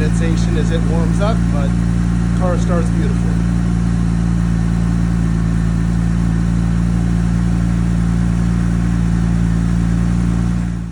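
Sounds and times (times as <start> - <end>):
car engine idling: 0.0 - 10.9.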